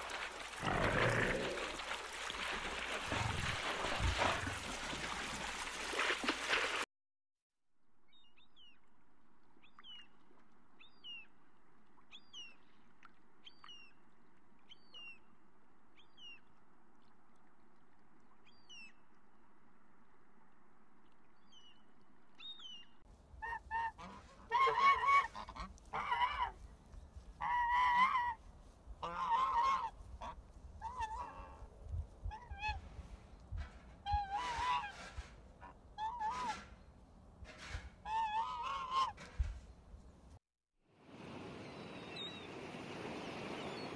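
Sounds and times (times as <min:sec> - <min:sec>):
geese honking: 0:23.4 - 0:26.6, 0:27.4 - 0:28.4, 0:29.0 - 0:31.6, 0:38.1 - 0:39.2
faint surf: 0:41.0 - 0:43.9.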